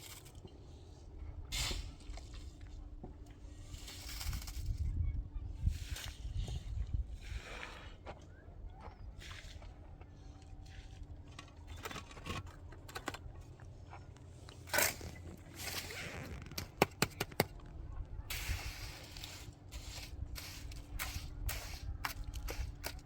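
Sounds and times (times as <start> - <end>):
scraping and handling noises: 5.6 - 23.0.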